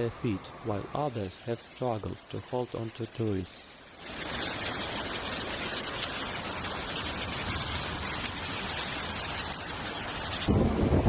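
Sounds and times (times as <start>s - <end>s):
torrential water rushing: 1.0s - 10.6s.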